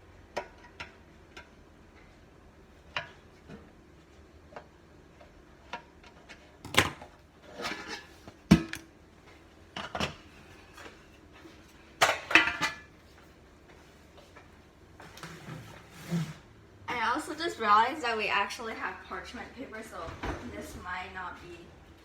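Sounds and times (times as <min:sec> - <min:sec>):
metal pans clanking and scraping: 0:05.6 - 0:08.8, 0:11.9 - 0:12.9.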